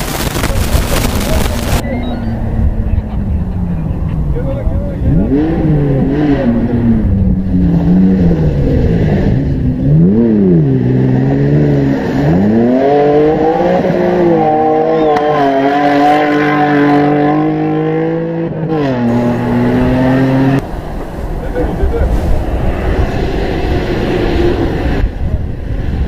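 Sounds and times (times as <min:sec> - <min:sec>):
engine revving: 0:00.0 - 0:25.2.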